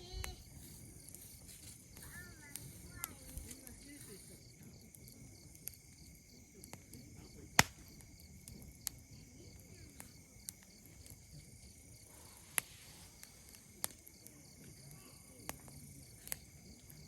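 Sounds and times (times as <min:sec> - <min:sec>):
campfire crackling and popping: 0:00.0 - 0:17.0
insects chirring: 0:00.0 - 0:17.0.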